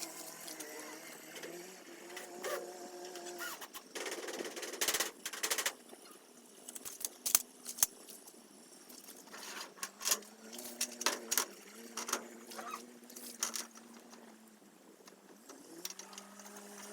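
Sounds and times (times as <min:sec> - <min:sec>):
cordless drill motor whine: 0:15.5 - 0:16.9.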